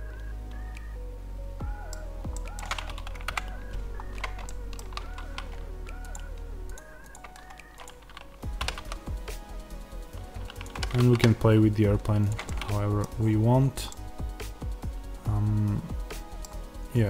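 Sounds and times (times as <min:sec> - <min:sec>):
soft background music: 0:00.0 - 0:17.0
keyboard and mouse clicking: 0:01.8 - 0:09.4, 0:10.1 - 0:14.4, 0:15.6 - 0:16.6.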